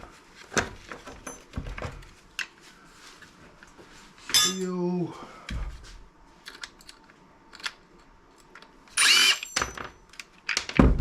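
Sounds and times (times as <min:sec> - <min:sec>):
power drill whine: 0:09.0 - 0:09.8.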